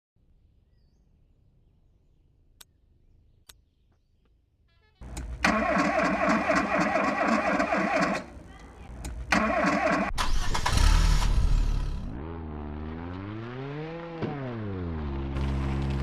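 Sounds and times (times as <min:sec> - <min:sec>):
car engine starting and running: 0:05.0 - 0:16.0.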